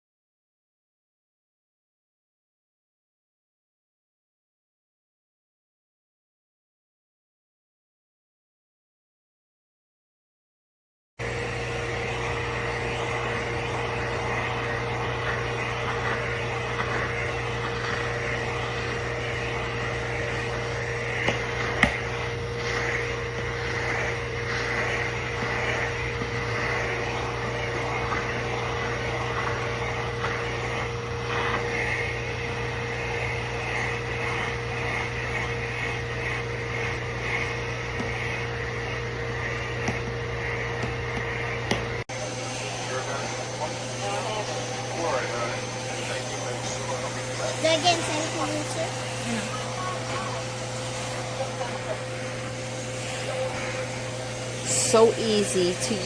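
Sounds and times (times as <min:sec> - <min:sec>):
grooming vacuum running: 0:11.2 - 0:56.0.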